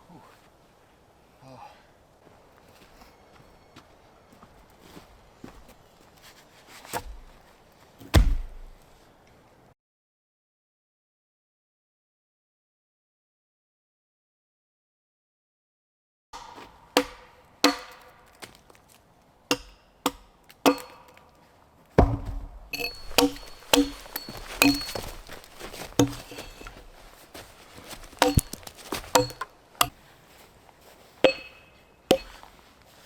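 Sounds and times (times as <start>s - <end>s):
wood being chopped: 6.9s - 7.4s, 8.0s - 8.9s, 16.4s - 18.8s, 19.5s - 21.3s, 22.0s - 30.0s, 31.2s - 32.5s.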